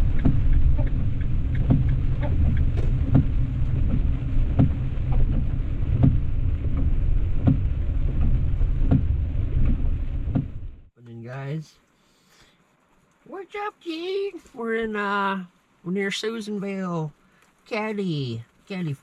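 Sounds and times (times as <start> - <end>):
van cabin road noise: 0.0 - 10.9.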